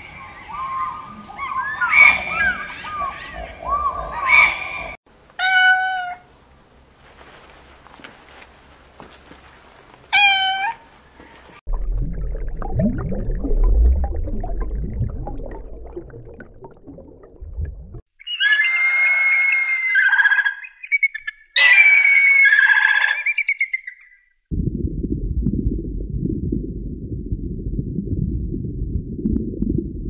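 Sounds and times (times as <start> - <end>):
shrill bird calls: 0.0 - 6.1, 18.2 - 24.4
cat meowing: 5.4 - 6.2, 10.2 - 10.8
low rumbling noise: 11.7 - 18.0, 24.5 - 30.0.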